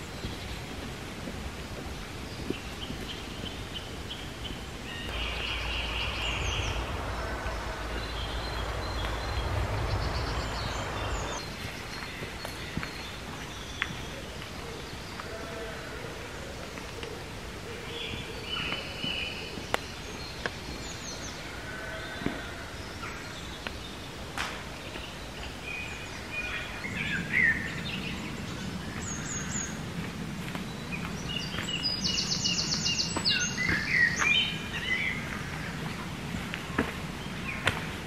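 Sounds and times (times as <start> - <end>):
low background rumble: 0.0 - 13.7
birds chirping and singing: 2.0 - 30.0, 30.6 - 36.0.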